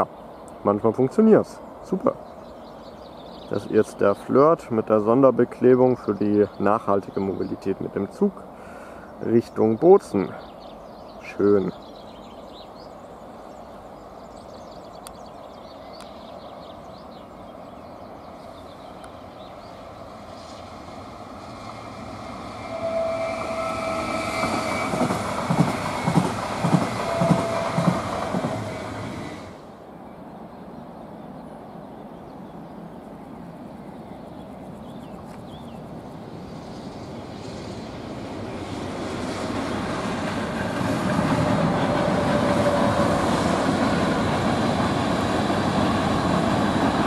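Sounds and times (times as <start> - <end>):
train whine: 10.7 - 47.0
locomotive rumble: 16.3 - 29.8, 35.7 - 47.0
train wheels clacking over rail joints: 23.7 - 29.1, 39.5 - 47.0.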